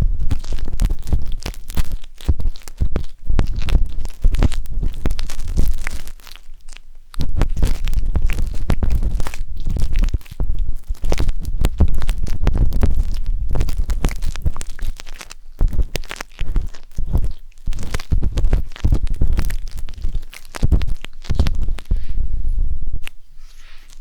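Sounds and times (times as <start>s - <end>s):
skewer scratching microphone: 0.0s - 24.0s
low rumble: 7.4s - 23.7s.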